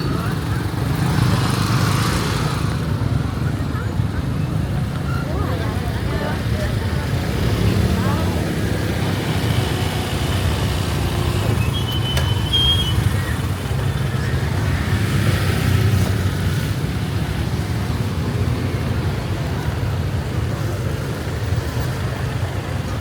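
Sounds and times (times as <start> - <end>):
passing vehicles rumbling: 0.0 - 23.0
brief high squeak: 11.5 - 13.2.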